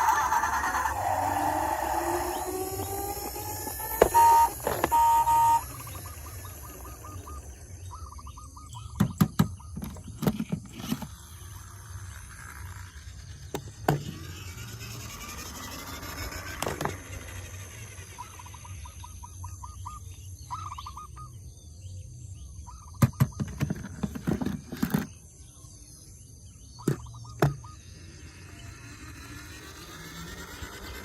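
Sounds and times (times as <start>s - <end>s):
toy electronic beep: 0.0s - 7.6s
warbling toy siren: 0.0s - 7.6s, 14.1s - 18.9s, 27.9s - 31.0s.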